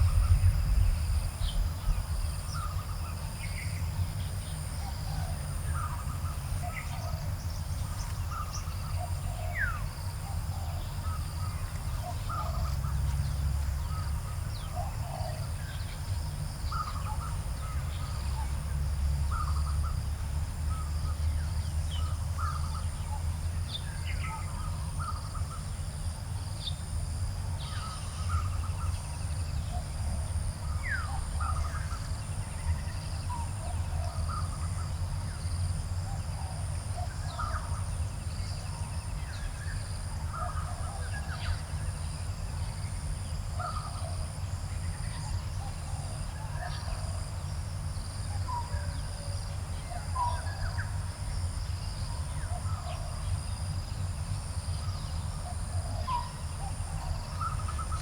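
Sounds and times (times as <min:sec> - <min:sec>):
low rumble: 0:00.0 - 0:02.7
high insect drone: 0:00.0 - 0:58.0.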